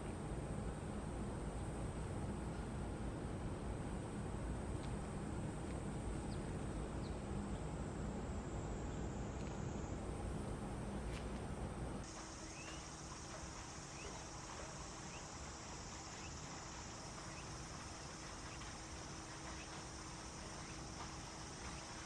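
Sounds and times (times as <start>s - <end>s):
faint low hum: 0.0s - 22.0s
steady outdoor hiss: 0.0s - 22.0s
faint rising chirps: 12.1s - 22.0s.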